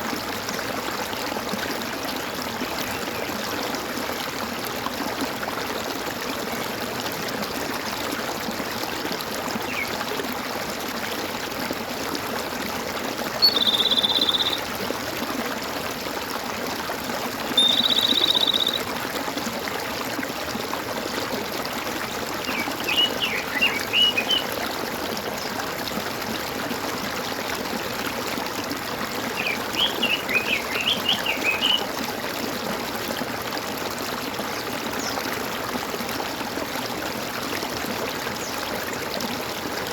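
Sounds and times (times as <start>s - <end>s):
stream gurgling: 0.0s - 39.9s
bird chirping: 13.4s - 14.6s, 17.6s - 18.9s, 22.5s - 24.5s, 29.4s - 31.8s
buzzy bird trills: 13.4s - 14.6s, 17.6s - 18.8s.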